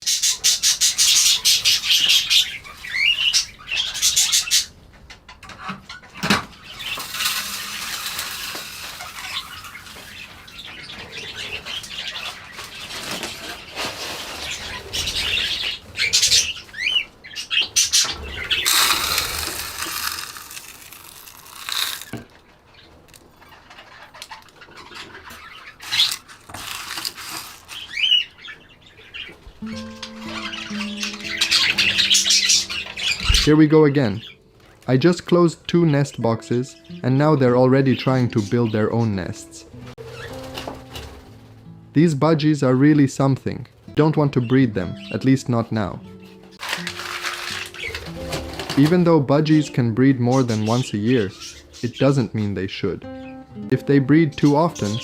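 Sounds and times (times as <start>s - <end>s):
budgerigars chattering and chirping: 0.0s - 4.8s, 6.5s - 13.6s, 14.4s - 22.0s, 22.7s - 34.4s, 50.2s - 53.5s
wings flapping: 6.8s - 10.2s, 46.6s - 48.9s.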